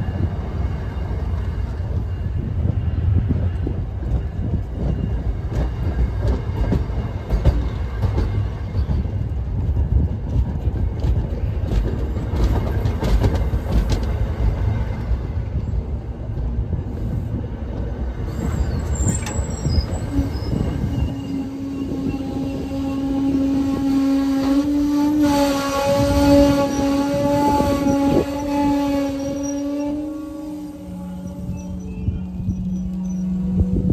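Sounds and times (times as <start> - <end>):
train rolling past rumble: 0.0 - 33.9
wheel squeals: 18.2 - 23.6, 29.2 - 30.1, 31.0 - 33.9.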